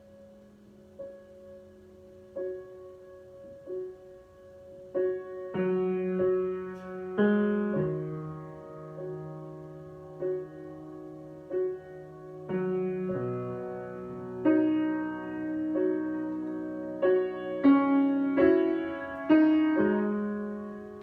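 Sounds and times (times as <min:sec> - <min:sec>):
slow solo piano chords: 0:00.0 - 0:21.0.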